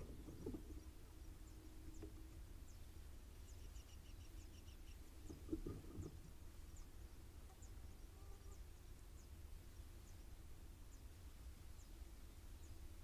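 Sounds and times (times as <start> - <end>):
soft low knocks: 0.0 - 2.5, 5.2 - 6.4
steady low hum: 0.0 - 13.0.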